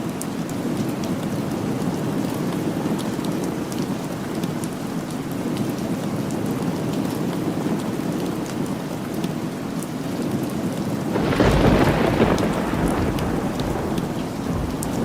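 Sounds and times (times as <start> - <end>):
steady rain falling: 0.0 - 15.0
low roll of thunder: 11.2 - 15.0.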